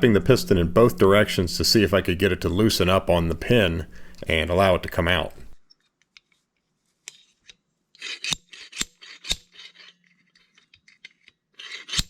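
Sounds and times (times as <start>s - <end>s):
metal scraping: 0.0s - 5.6s.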